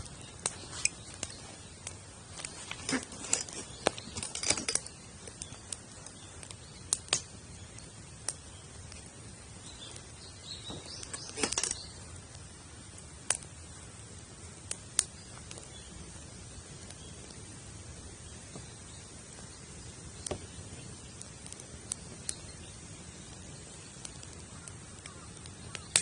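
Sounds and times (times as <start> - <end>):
campfire crackling and popping: 0.0 - 26.0
fire low hiss: 0.0 - 26.0
rustling clatter: 2.4 - 4.9.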